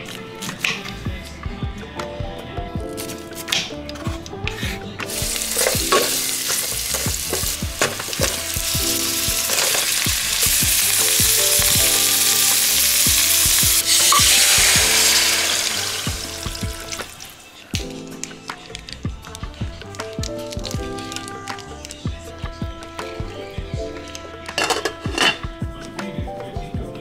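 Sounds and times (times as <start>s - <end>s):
stirring knocks: 3.0s - 23.2s, 23.9s - 25.8s
vegetables sizzling in oil: 5.1s - 17.7s.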